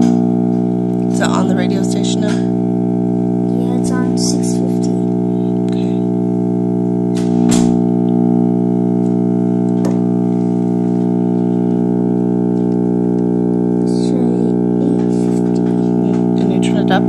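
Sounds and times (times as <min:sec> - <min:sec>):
radio buzzing hum: 0:00.0 - 0:17.0.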